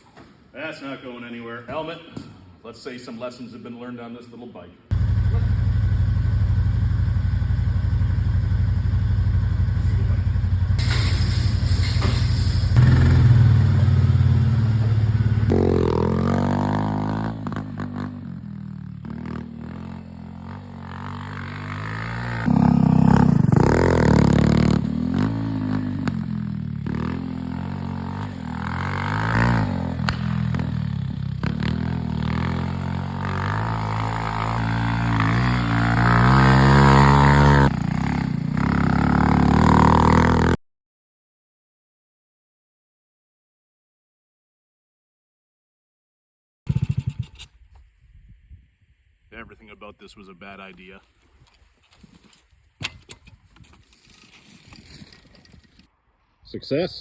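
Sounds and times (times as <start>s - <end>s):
minibike engine revving: 4.9s - 40.6s, 46.7s - 47.5s.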